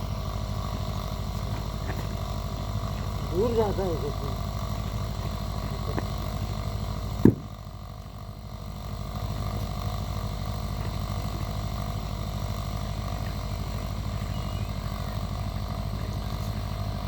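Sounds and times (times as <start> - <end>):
engine running: 0.0 - 17.0
sharp knock: 7.2 - 7.5.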